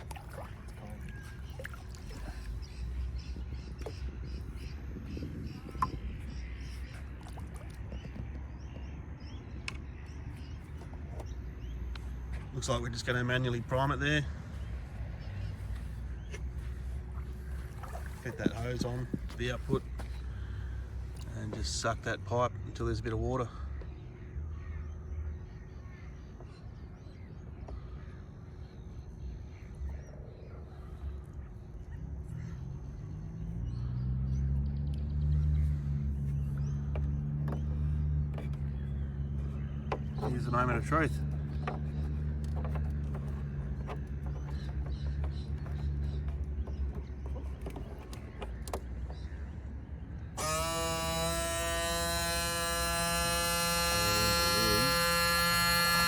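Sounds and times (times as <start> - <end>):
faint bird calls: 0.0 - 12.7
low hum: 23.7 - 56.0
faint steady hum: 49.9 - 56.0
small electric motor whining: 50.4 - 56.0.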